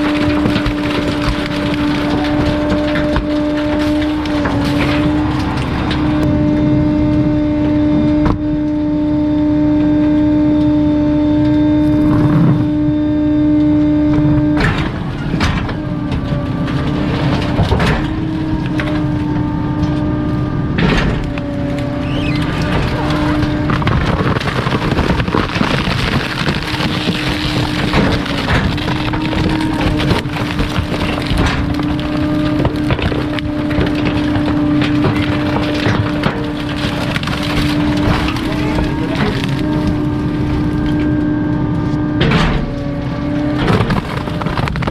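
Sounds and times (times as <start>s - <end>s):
hydraulic compactor humming: 0.0s - 44.9s.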